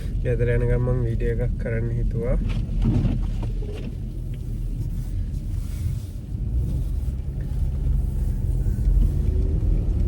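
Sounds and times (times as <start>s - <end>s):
car engine and tyres rumbling: 0.0s - 10.0s.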